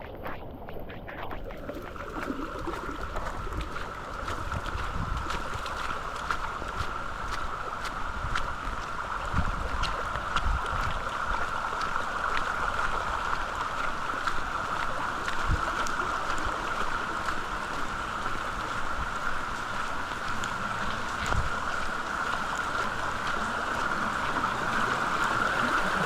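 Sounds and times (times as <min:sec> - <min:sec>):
wind buffeting microphone: 0:00.0 - 0:11.8, 0:15.3 - 0:26.0
raindrops ticking on surfaces: 0:00.0 - 0:26.0
steady rain hiss: 0:11.0 - 0:26.0.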